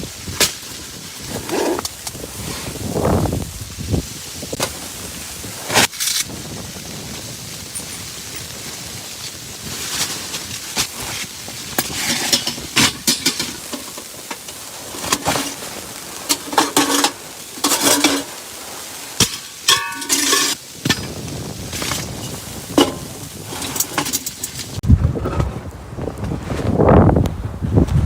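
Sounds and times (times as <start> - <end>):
objects knocking and clattering: 10.8 - 15.7, 16.3 - 18.3, 19.2 - 25.6.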